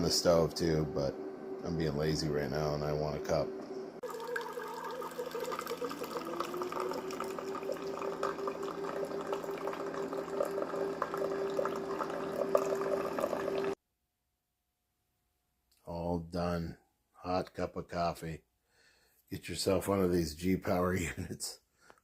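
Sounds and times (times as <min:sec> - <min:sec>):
coffee maker pump humming: 0:00.0 - 0:13.8
hot water gurgling into cup: 0:04.0 - 0:13.8.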